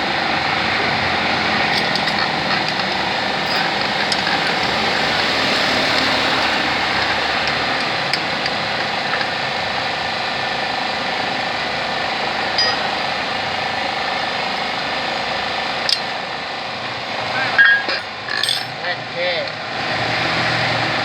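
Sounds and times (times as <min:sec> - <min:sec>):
small engine running: 0:00.0 - 0:16.2.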